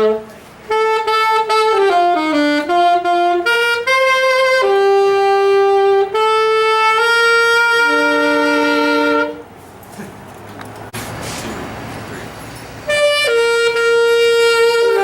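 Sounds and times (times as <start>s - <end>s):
saxophones playing slow melody: 0.0s - 9.6s, 12.8s - 15.0s.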